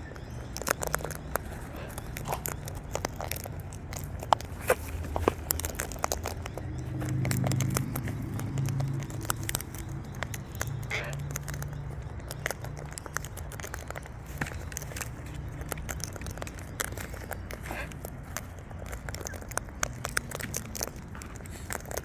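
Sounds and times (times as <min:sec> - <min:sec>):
beaks cracking seeds: 0:00.0 - 0:22.0.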